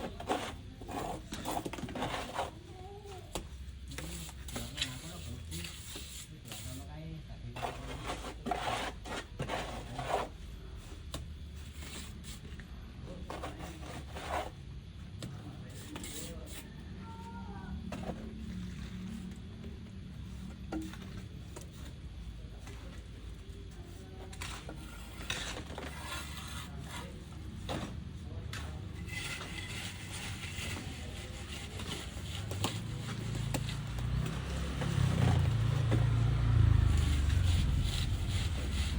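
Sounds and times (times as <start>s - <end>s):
trowel scraping wet plaster: 0.0s - 2.7s, 3.3s - 6.9s, 7.6s - 10.4s, 13.2s - 14.6s, 24.1s - 36.0s, 36.7s - 38.9s.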